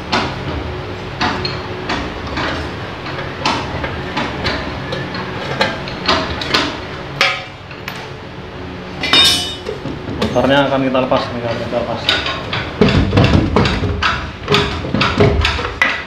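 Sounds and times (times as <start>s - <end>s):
metal knocks and clinks: 9.0s - 9.8s.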